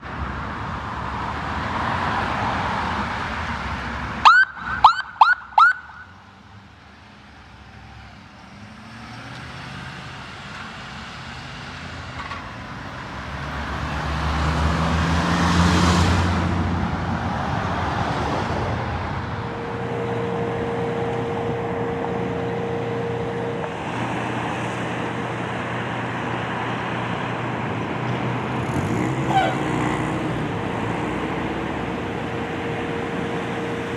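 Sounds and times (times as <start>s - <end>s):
heavy truck engine rumble: 6.6s - 33.9s
steady warning tone: 12.2s - 15.6s, 18.9s - 26.4s, 30.4s - 33.9s.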